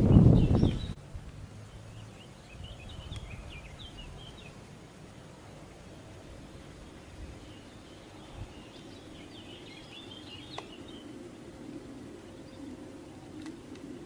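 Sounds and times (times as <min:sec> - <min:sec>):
low background noise: 0:00.0 - 0:14.0
small birds chirping: 0:00.0 - 0:14.0
faint click: 0:03.1 - 0:03.3.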